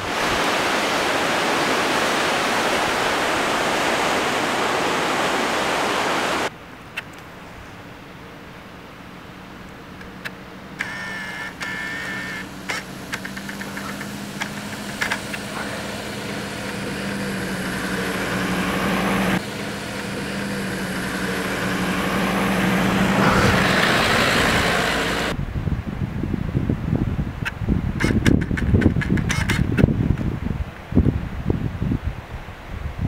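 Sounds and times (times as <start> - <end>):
car engine running at low revs: 7.2 - 31.8.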